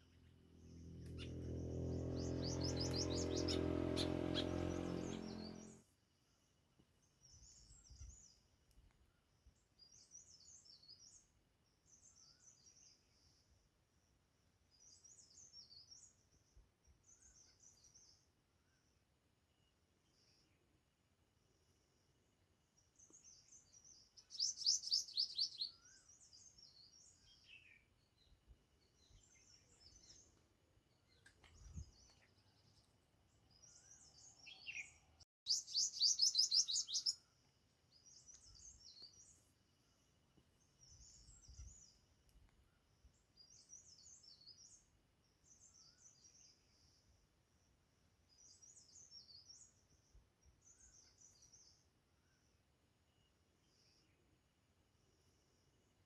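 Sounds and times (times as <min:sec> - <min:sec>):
songbirds chirping: 0:00.0 - 0:56.0
rapid bird trills: 0:01.0 - 0:05.8.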